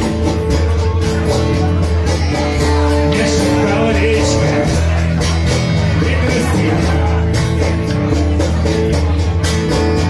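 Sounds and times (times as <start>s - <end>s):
steady drumbeat: 0.0s - 10.0s
man singing: 2.3s - 8.3s.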